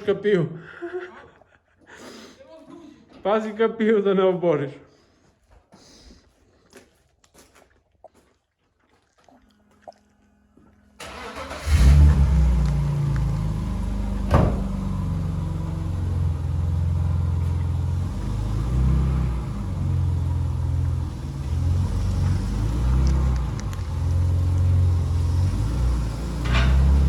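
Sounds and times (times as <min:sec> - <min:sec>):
car engine starting and running: 0:10.9 - 0:27.0.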